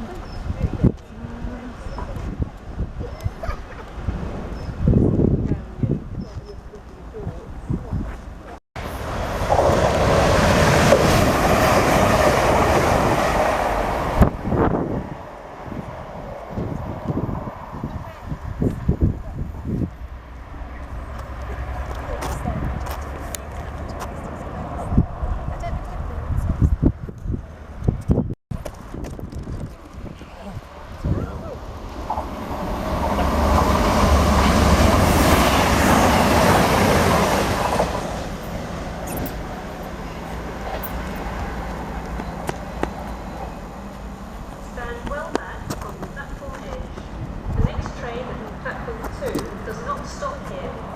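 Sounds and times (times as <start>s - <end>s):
wheels clacking on rails: 8.8s - 14.5s, 28.6s - 50.9s
train passing on track: 8.8s - 27.8s, 29.8s - 50.9s.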